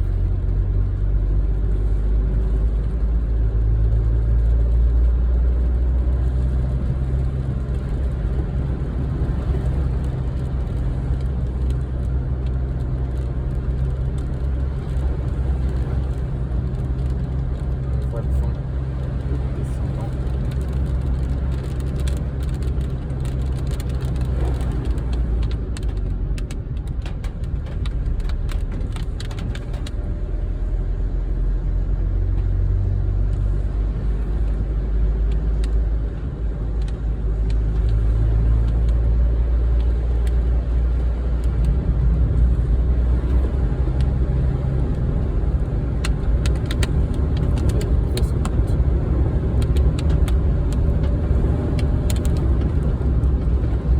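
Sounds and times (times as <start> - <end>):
car road and engine rumble: 0.0 - 53.9
light ticks: 36.8 - 42.6, 44.8 - 53.9.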